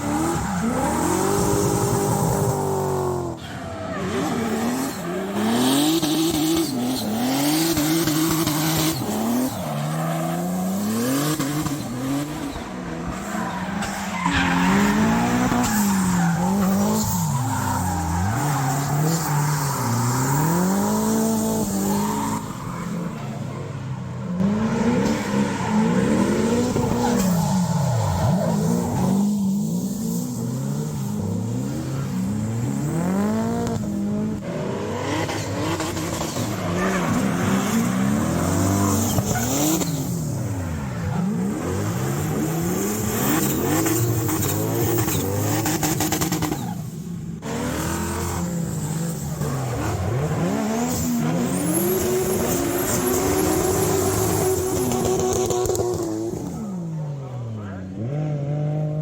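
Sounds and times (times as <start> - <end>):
tyre squeal: 0.0 - 23.7, 48.8 - 56.7
car engine revving: 0.0 - 56.9.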